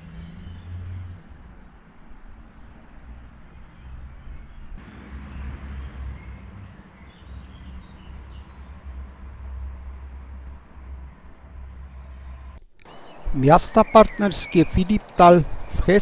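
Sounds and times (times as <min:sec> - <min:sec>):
bird chirps: 0:03.8 - 0:08.8, 0:12.8 - 0:16.0
low rumble and hiss: 0:04.7 - 0:12.6.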